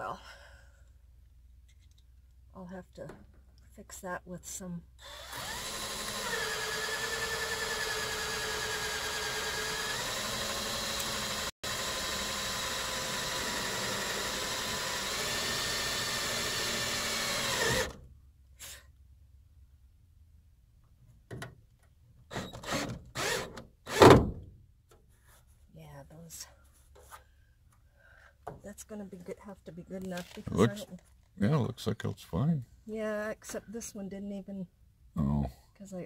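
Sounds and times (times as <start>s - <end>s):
power drill running: 5.0s - 18.0s, 22.3s - 24.1s.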